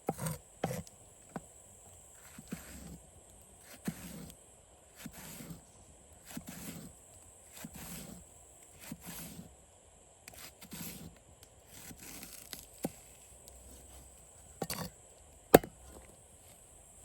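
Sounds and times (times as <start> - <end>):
knife chopping on wood: 0.0 - 1.5, 15.6 - 16.1.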